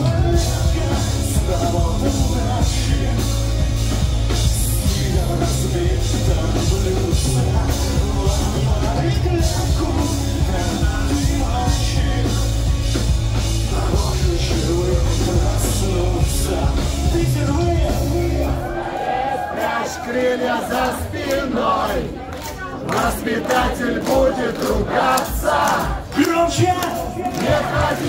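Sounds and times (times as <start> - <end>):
person singing: 0.0 - 18.7
crowd shouting and cheering: 0.0 - 28.0
pop-punk band playing live: 0.0 - 28.0.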